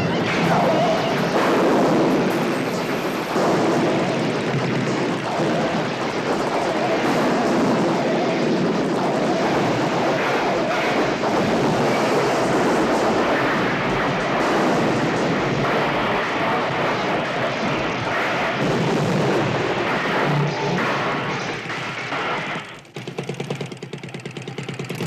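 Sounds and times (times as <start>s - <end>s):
helicopter noise: 0.0s - 25.0s.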